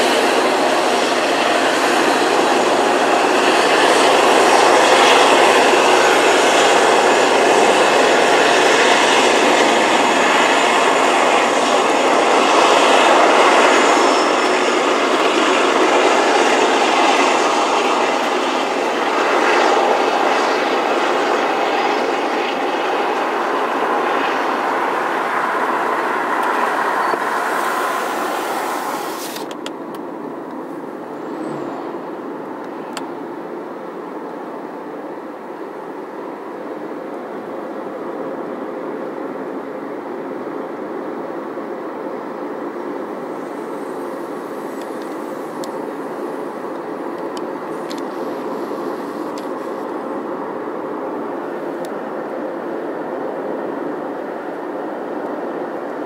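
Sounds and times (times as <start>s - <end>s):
freight train rolling past: 0.0s - 34.0s.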